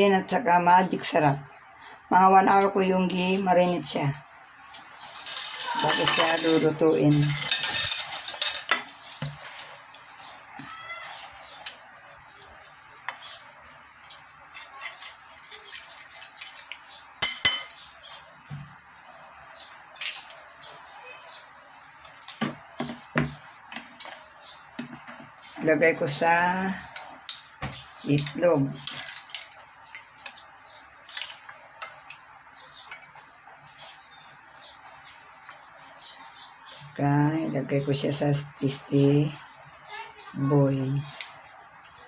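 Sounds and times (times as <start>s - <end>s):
metal utensils clinking on dishes: 5.2s - 8.8s, 17.2s - 17.8s, 20.0s - 20.4s.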